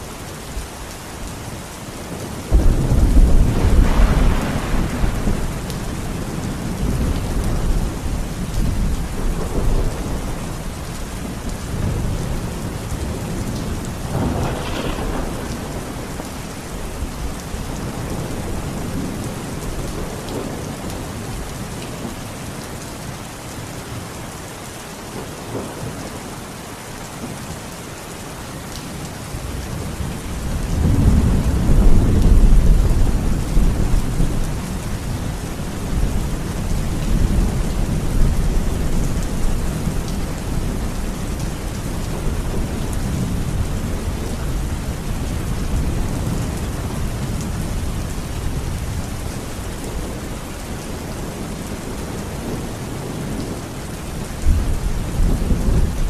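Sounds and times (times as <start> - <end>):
heavy rain: 0.0 - 56.0
rolling thunder: 2.5 - 10.7, 11.7 - 21.0, 29.4 - 50.1.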